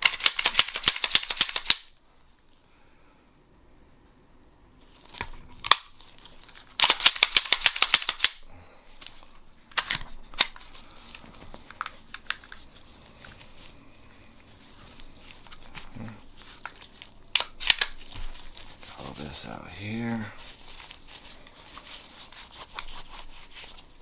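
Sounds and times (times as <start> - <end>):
pistol slide clicks and rattles: 0.0 - 2.0, 5.6 - 6.0, 6.8 - 8.4, 9.7 - 10.6, 17.3 - 18.1.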